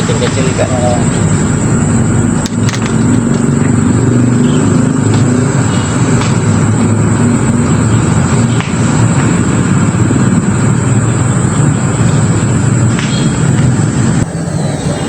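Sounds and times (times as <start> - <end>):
motor droning: 0.0 - 15.0.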